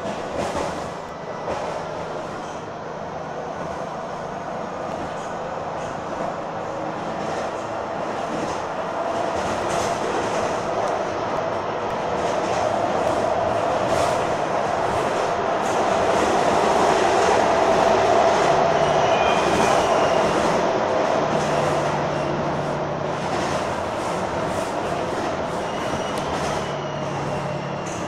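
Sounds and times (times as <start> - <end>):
train rattling rumble: 0.0 - 28.0
faint brief squeal: 25.5 - 28.0.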